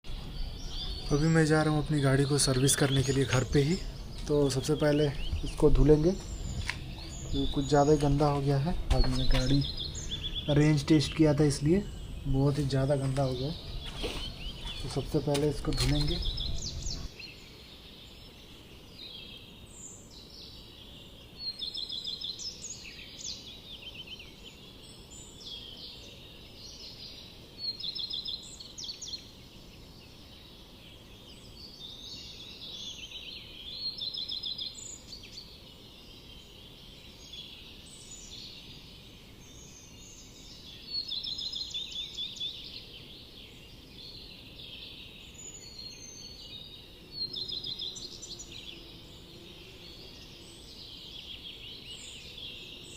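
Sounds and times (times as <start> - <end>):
songbird trilling: 0.1 - 17.4, 44.6 - 52.9
low background noise: 0.1 - 52.9.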